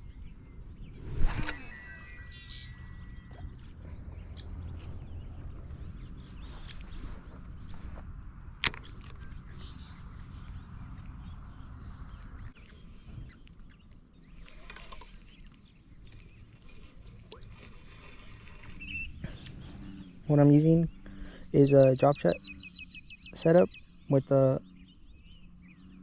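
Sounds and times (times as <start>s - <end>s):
low outdoor rumble: 0.0s - 13.7s.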